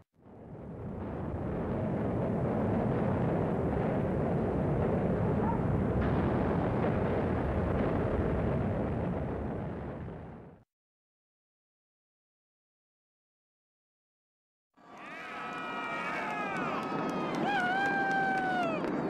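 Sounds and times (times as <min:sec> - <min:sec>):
roar of building collapsing: 0:00.3 - 0:10.6.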